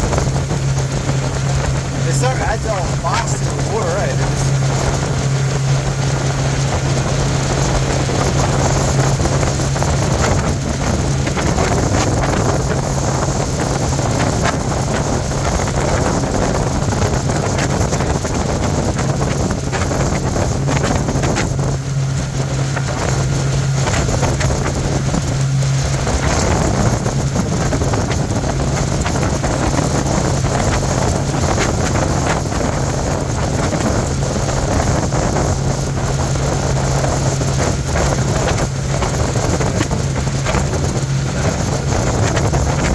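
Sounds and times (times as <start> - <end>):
motorboat engine droning: 0.0 - 42.9
wind buffeting microphone: 0.0 - 42.9.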